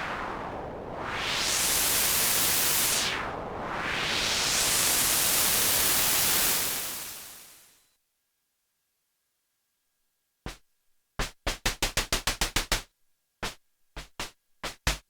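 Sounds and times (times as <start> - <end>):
filtered white noise hiss: 0.0 - 7.9.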